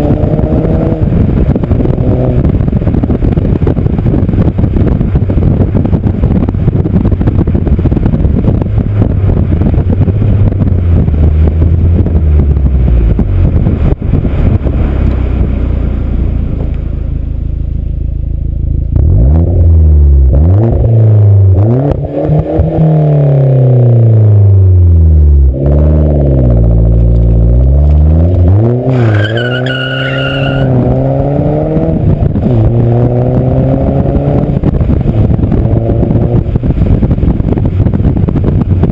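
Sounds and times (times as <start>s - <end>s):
car engine revving: 0.0s - 16.7s, 18.8s - 38.2s
high squeal: 28.9s - 30.8s.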